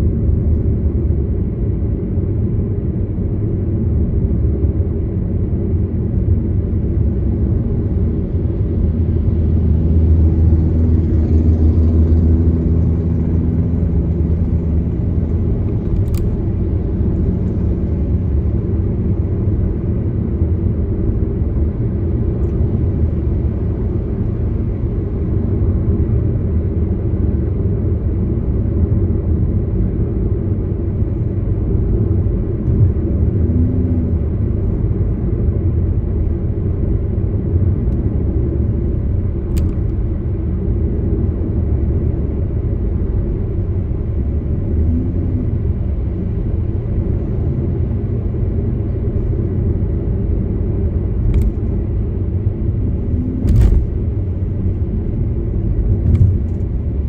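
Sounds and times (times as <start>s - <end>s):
car engine rumble: 0.0s - 57.0s
tyre noise on road: 50.4s - 57.0s.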